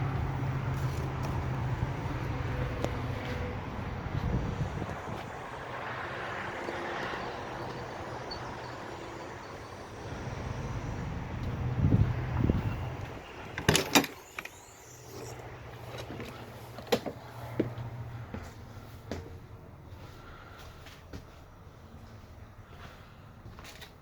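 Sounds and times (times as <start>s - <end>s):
outdoor rumble and hiss: 0.0s - 24.0s
door latch clicks: 13.6s - 14.5s.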